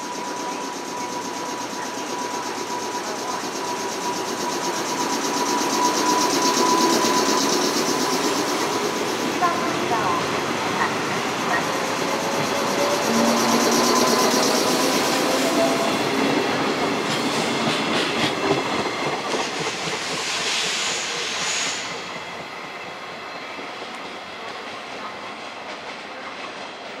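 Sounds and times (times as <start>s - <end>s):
high squeal: 0.0s - 9.8s, 11.0s - 16.4s
train wheels clicking over rail joints: 11.6s - 22.5s.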